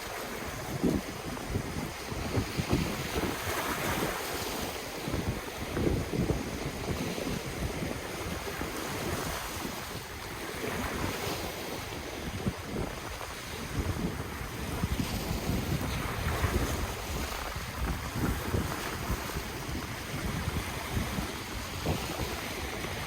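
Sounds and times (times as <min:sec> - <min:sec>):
ocean waves breaking: 0:00.0 - 0:23.0
wind buffeting microphone: 0:00.0 - 0:23.0.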